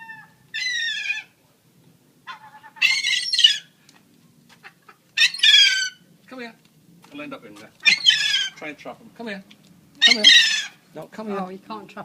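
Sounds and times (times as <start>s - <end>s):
young seagull calling: 0.0s - 1.3s, 2.3s - 3.7s, 4.6s - 6.0s, 7.8s - 8.6s, 10.0s - 10.8s.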